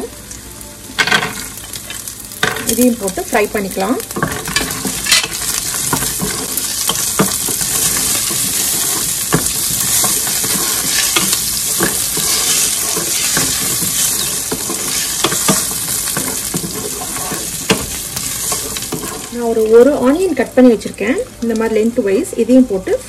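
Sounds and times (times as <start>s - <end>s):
food sizzling in hot oil: 0.0s - 22.7s
wooden spatula scraping pan: 4.1s - 20.0s.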